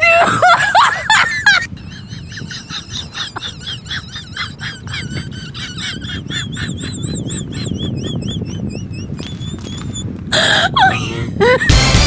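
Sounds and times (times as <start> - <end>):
bird chirping: 2.7 - 10.2.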